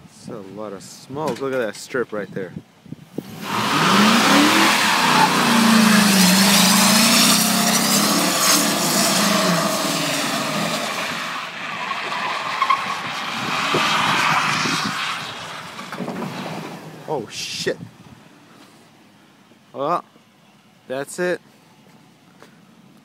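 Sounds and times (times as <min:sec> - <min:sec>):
pickup engine revving high: 0:03.2 - 0:15.8
tires spinning and squealing: 0:03.2 - 0:17.0.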